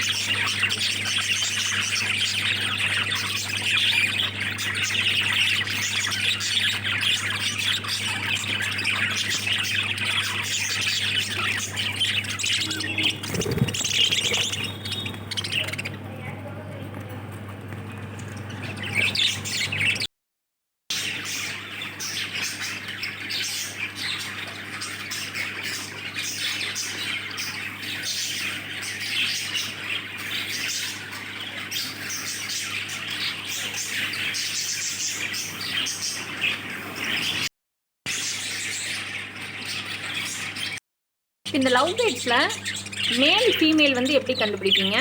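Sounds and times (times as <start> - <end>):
birds chirping and squawking: 0.0 - 20.1, 20.9 - 37.5, 38.1 - 40.8, 41.5 - 45.0
steady low hum: 0.0 - 20.1.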